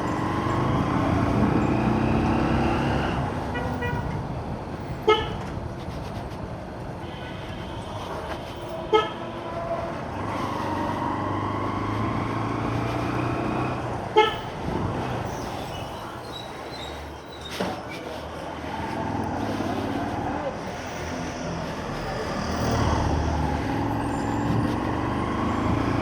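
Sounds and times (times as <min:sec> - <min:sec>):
motorcycle running on road: 0:00.0 - 0:03.3, 0:10.1 - 0:14.1, 0:18.7 - 0:26.0
vehicle horn toots: 0:05.0 - 0:05.4, 0:08.6 - 0:09.3, 0:14.1 - 0:14.5.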